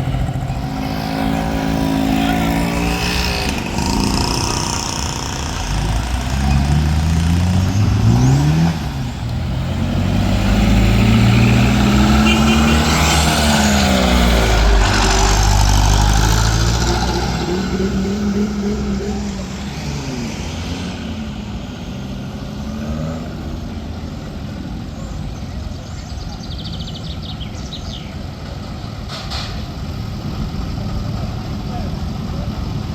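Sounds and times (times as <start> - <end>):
vehicles driving past: 0.0 - 32.9.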